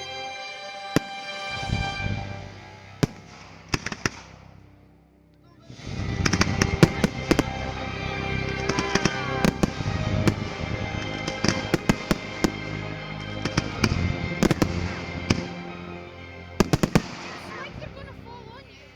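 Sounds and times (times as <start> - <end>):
music: 0.0 - 18.9
fireworks bursting with sharp bangs: 1.0 - 4.5, 5.9 - 15.7, 16.6 - 17.7.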